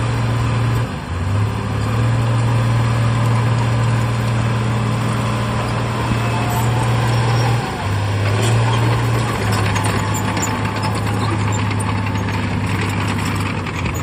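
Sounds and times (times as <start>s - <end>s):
heavy diesel engine running: 0.0s - 14.0s
metal clatter: 8.2s - 14.0s.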